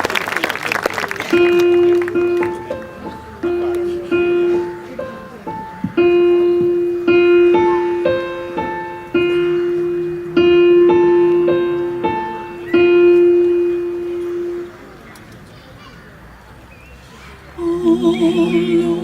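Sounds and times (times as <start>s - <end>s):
keyboard playing chords: 1.3s - 15.1s, 17.6s - 19.0s.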